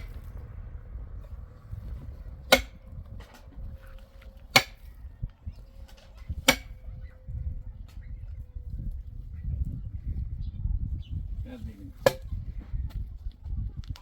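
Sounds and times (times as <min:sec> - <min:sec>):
low rumble: 0:00.0 - 0:13.8.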